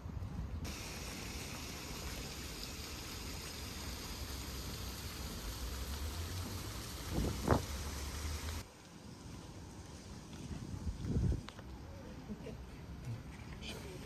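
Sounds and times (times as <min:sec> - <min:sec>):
flowing water: 0:00.7 - 0:08.7.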